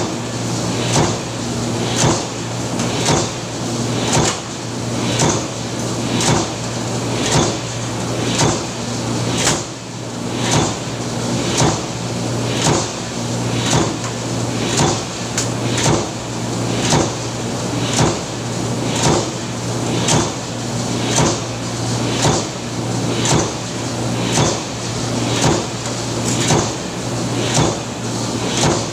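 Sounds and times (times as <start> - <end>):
power press stamping clunk: 0.8 - 1.3, 1.9 - 3.4, 4.0 - 4.5, 5.1 - 5.6, 6.2 - 6.6, 7.2 - 7.7, 8.3 - 8.8, 10.4 - 10.9, 11.5 - 11.9, 13.6 - 16.2, 16.8 - 20.4, 21.0 - 21.5, 23.2 - 23.6, 24.3 - 24.7, 25.3 - 28.9.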